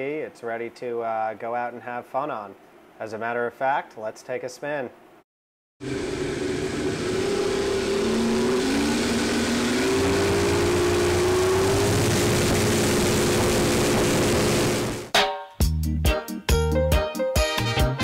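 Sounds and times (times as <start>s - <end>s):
outboard motors running: 5.8s - 15.1s.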